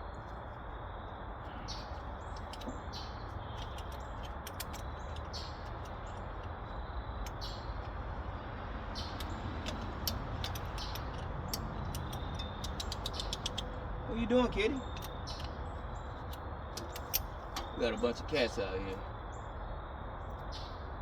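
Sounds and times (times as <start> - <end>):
sharp little ticks: 2.0 - 14.0.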